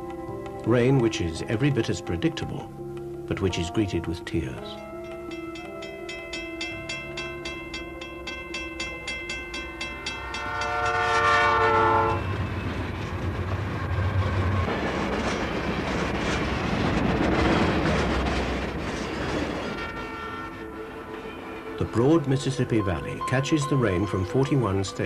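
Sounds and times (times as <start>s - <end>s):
train rushing past: 3.3s - 25.0s
train horn chord: 10.1s - 12.4s, 19.6s - 23.3s.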